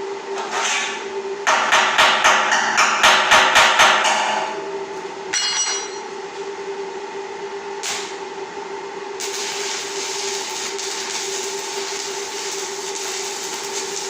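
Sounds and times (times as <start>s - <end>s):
steady mechanical hum: 0.0s - 14.0s
short metallic ring: 5.3s - 6.1s.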